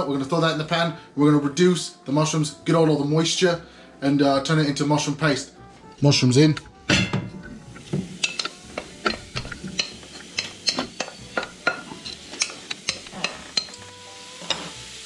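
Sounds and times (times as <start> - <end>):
mushrooms sizzling in oil: 7.2 - 15.0.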